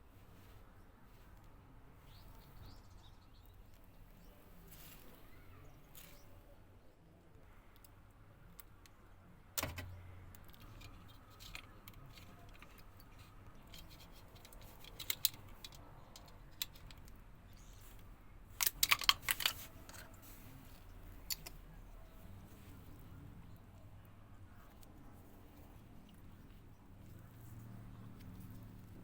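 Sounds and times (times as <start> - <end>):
hard objects clicking and knocking: 9.6 - 17.2, 18.6 - 20.2, 20.8 - 21.6.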